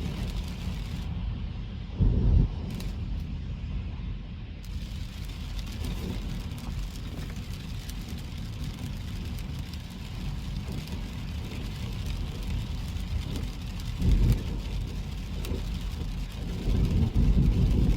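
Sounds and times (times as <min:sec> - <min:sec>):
hiss of rain and spray: 0:00.0 - 0:01.2, 0:04.6 - 0:17.9
car driving on wet road: 0:04.6 - 0:17.9.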